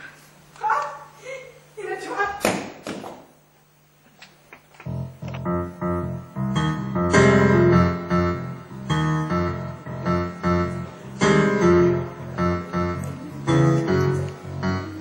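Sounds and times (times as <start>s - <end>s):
piano chords: 4.8s - 15.0s.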